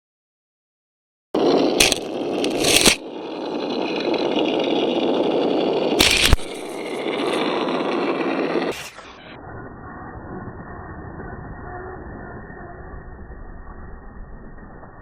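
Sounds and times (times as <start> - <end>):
model vehicle motor and tyres: 1.4 - 15.0
sharp knocks and scrapes: 1.5 - 3.0.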